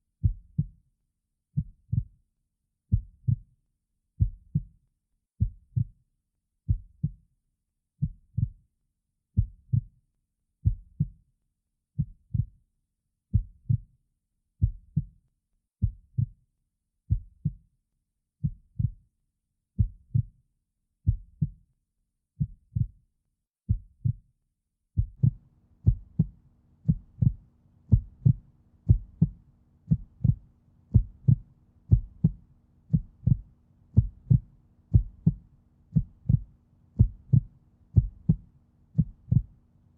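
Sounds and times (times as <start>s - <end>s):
low double thumps: 25.1s - 38.4s
steady low hum: 25.2s - 39.9s.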